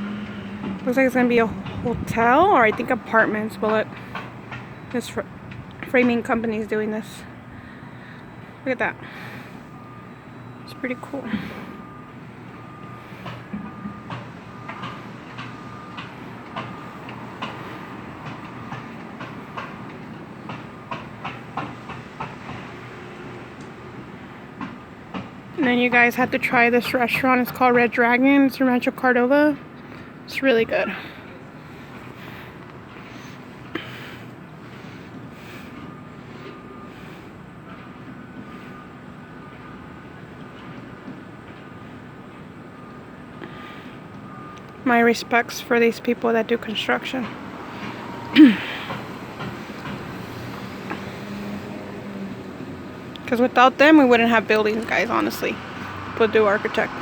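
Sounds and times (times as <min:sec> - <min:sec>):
low engine hum: 0:00.0 - 0:21.0, 0:23.0 - 0:57.0
backup alarm beeping: 0:00.0 - 0:23.2, 0:23.9 - 0:52.3, 0:53.2 - 0:57.0
vehicle rumble and hiss: 0:00.0 - 0:57.0.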